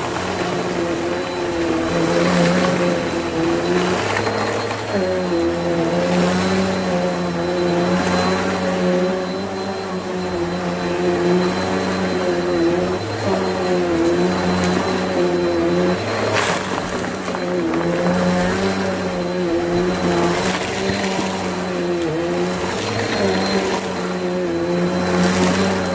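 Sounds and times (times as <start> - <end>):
vacuum cleaner running: 0.0 - 25.9.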